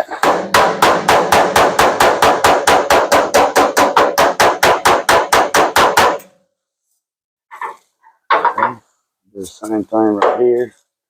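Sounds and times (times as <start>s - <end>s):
hammer tapping on sheet metal: 0.2s - 6.3s, 10.2s - 10.5s.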